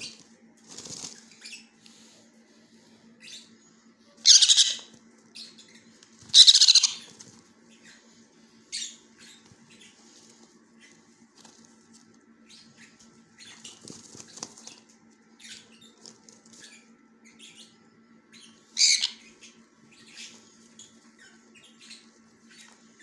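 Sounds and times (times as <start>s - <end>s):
parrot chicks calling softly: 3.2s - 23.0s
loud parrot screech: 4.2s - 4.9s, 6.3s - 7.1s, 18.8s - 19.2s.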